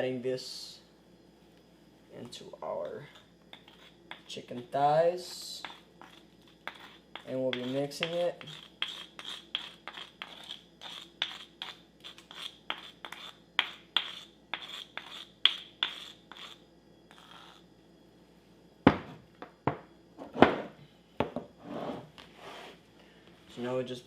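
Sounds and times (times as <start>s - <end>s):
paste scraped from mortar: 3.0s - 4.7s, 5.6s - 13.4s, 14.0s - 17.6s.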